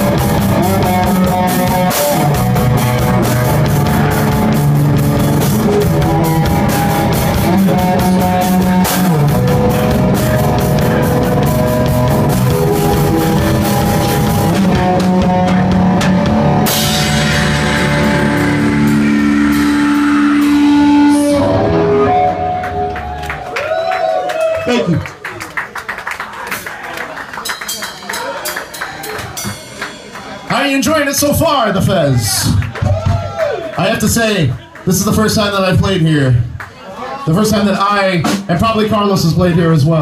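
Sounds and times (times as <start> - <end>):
held guitar chords ringing: 0.0 - 23.5
live rock band playing: 0.0 - 23.6, 27.3 - 31.9, 37.4 - 40.0.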